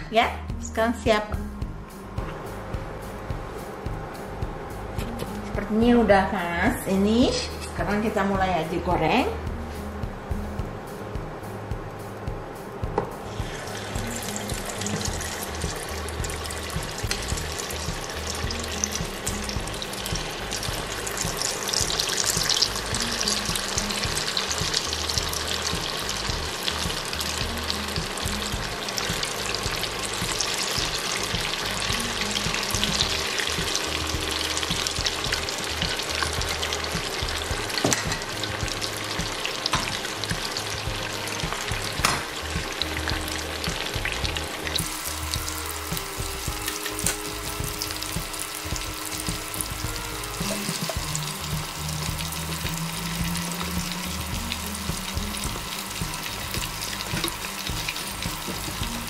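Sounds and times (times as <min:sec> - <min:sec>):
batter deep-frying in hot oil: 0:13.3 - 0:59.0.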